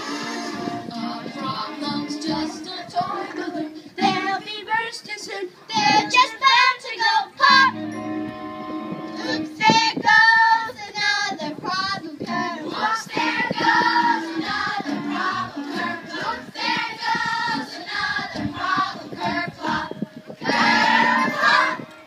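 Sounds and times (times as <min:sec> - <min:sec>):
musical accompaniment: 0:00.0 - 0:02.9, 0:05.7 - 0:06.3, 0:07.4 - 0:09.7
voices singing together: 0:00.0 - 0:07.8, 0:09.1 - 0:22.0.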